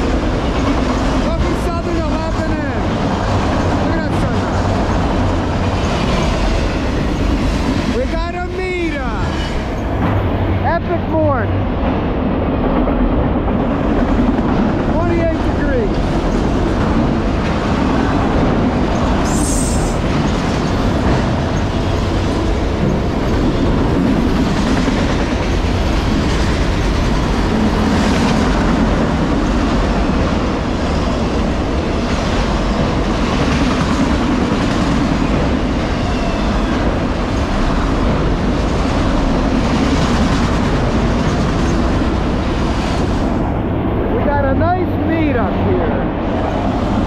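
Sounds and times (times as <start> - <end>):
steel wheels rumbling on rail: 0.0 - 47.0
wheels clickety-clack over joints: 15.8 - 35.9, 36.6 - 43.2.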